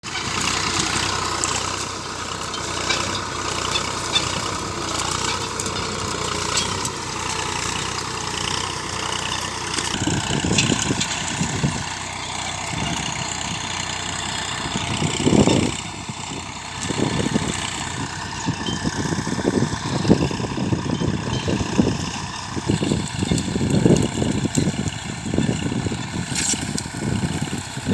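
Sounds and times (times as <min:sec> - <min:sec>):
tractor engine running: 0:00.0 - 0:27.9.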